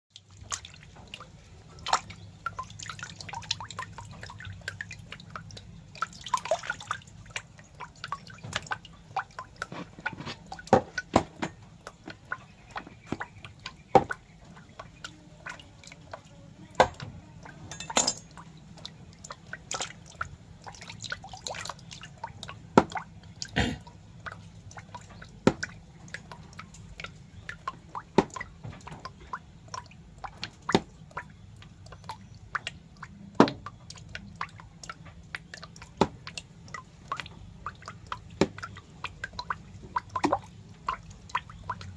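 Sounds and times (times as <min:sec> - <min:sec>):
wet clicks and drips: 0:00.1 - 0:41.9.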